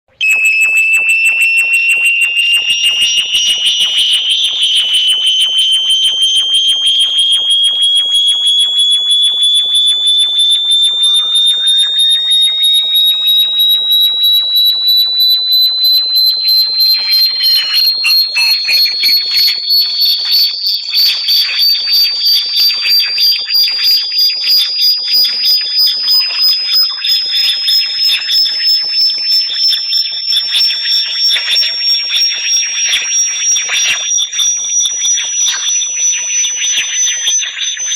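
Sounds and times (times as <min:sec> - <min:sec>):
high-pitched electronic tone pulsing: 0:00.1 - 0:37.9.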